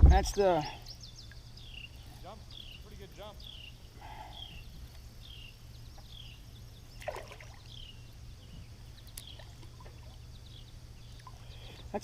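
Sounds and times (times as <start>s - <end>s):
bird chirping: 0.2s - 12.0s
fish splashing in water: 7.0s - 7.7s.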